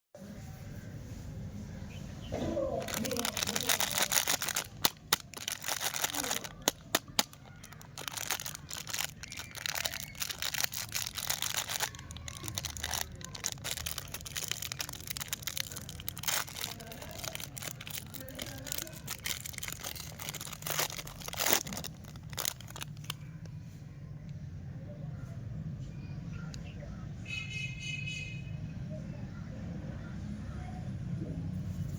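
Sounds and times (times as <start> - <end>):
plastic wrappers crinkling and tearing: 2.6 - 23.4.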